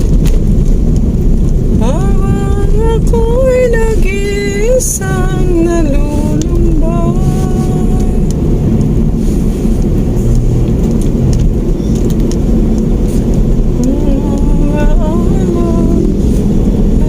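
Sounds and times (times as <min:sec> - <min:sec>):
car engine and road rumble: 0:00.0 - 0:17.0
person singing: 0:01.8 - 0:08.3, 0:13.8 - 0:16.2.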